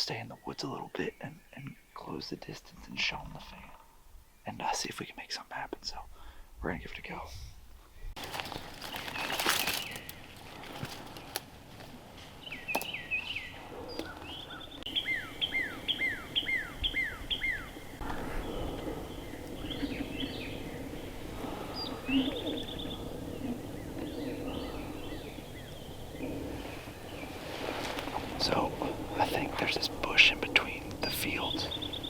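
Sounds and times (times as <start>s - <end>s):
bird chirps and buzzy trill: 12.4s - 27.4s, 28.4s - 32.0s.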